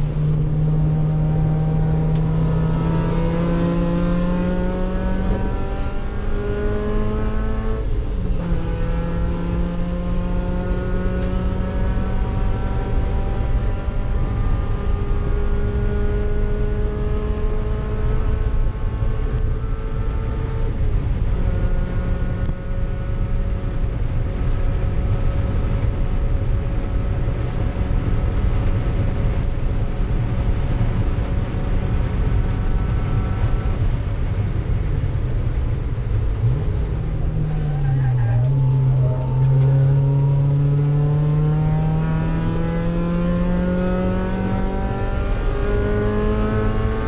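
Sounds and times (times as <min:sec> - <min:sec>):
race car engine running hard: 0:00.0 - 0:47.0.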